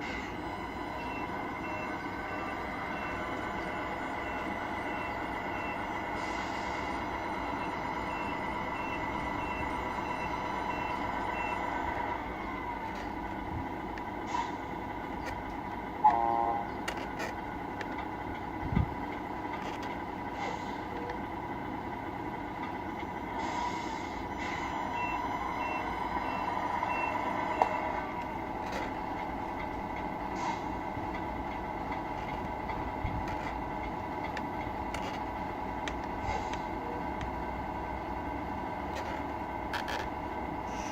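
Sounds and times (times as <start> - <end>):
electronic diesel engine hum: 0.0 - 40.9
air horn blast: 16.0 - 16.7.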